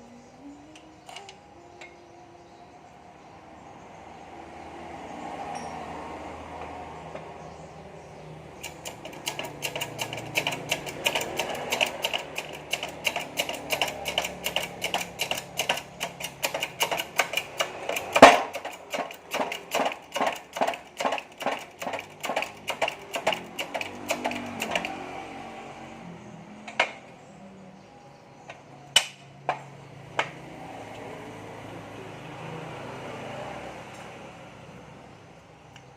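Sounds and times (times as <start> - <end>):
hand tool metallic clicks: 8.6 - 25.0.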